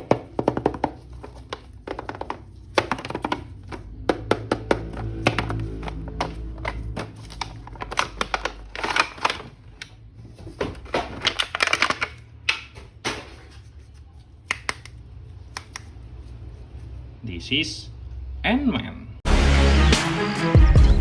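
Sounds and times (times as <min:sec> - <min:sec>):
packaging rustling: 0:00.0 - 0:12.2.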